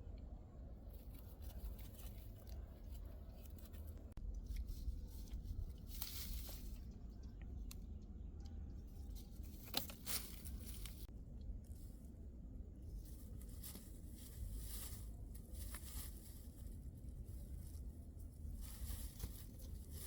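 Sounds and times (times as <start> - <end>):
material rustling and crinkling: 9.1 - 11.1, 12.9 - 20.0.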